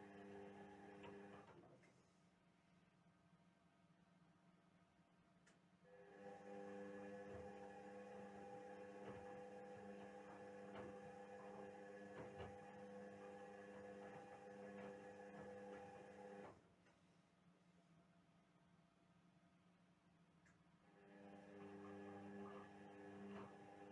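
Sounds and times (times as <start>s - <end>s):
washing machine electrical hum: 6.1s - 17.0s, 20.3s - 23.9s.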